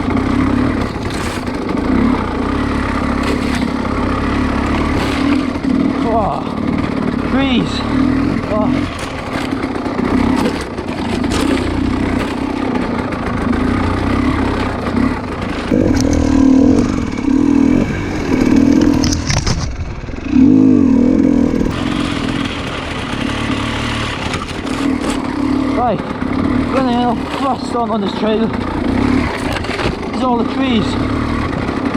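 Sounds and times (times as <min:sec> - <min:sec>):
dirt bike engine revving: 0:00.0 - 0:31.9
clattering and scraping knocks: 0:08.9 - 0:20.2.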